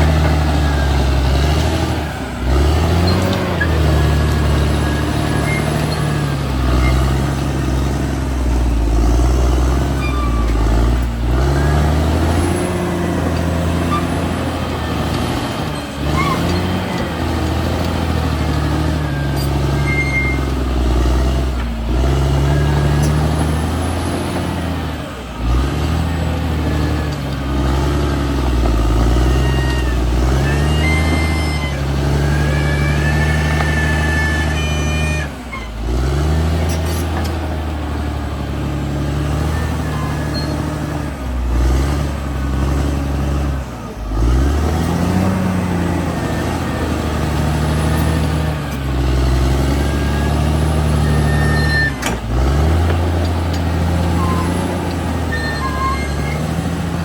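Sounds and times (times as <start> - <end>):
bulldozer diesel engine working: 0.0 - 57.0
high squeaks: 2.5 - 7.5, 9.8 - 20.6, 28.9 - 35.9, 39.2 - 41.0, 49.6 - 52.1, 53.3 - 56.9.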